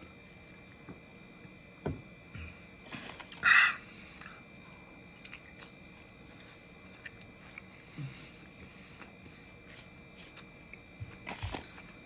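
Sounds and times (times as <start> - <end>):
person chewing quietly: 2.4 - 12.0.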